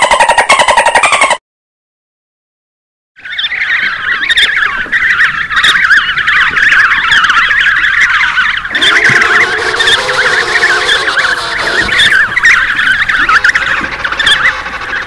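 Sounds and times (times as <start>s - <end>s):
dolphins whistling: 3.2s - 15.0s.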